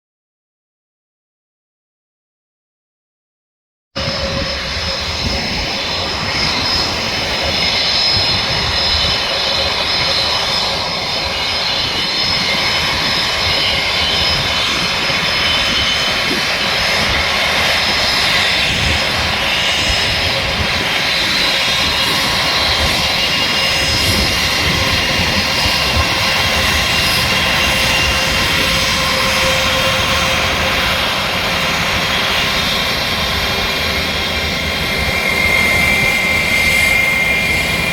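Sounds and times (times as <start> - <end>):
jet engines running: 4.0 - 37.9.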